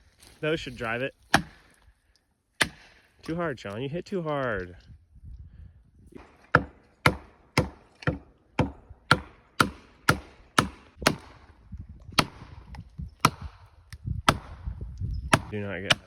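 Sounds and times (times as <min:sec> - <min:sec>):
hammer striking felling wedges: 0:01.3 - 0:01.8, 0:02.6 - 0:03.4, 0:06.2 - 0:11.6, 0:12.2 - 0:13.6.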